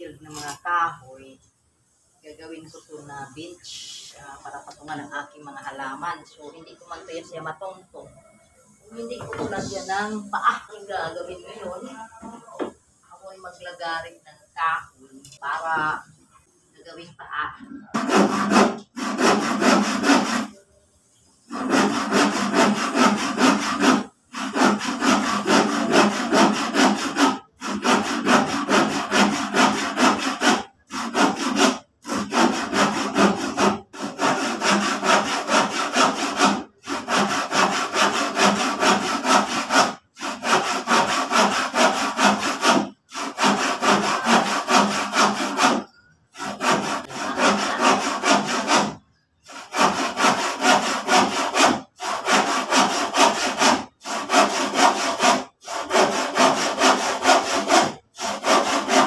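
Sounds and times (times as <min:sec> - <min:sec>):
hand saw cutting wood: 0:17.9 - 0:20.6, 0:21.5 - 0:59.0.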